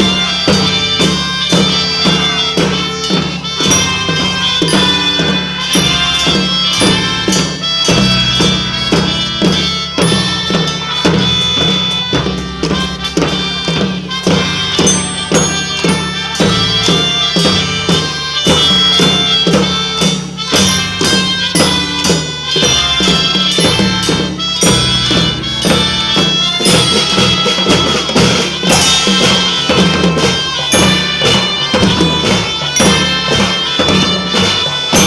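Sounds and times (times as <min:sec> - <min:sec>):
reedy wind-instrument melody: 0:00.0 - 0:35.0
steady drum beat: 0:00.0 - 0:35.0.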